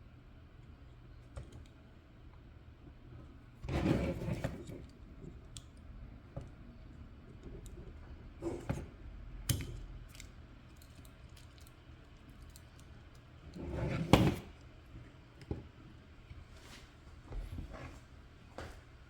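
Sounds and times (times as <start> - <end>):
light clicks and knocks of parts: 9.4 - 13.5.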